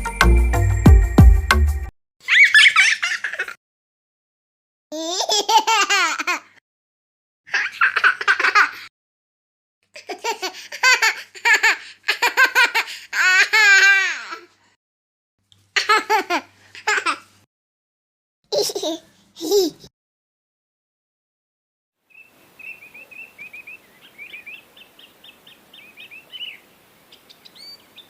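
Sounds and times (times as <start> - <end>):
high-pitched wavering laughter: 2.2 - 3.6.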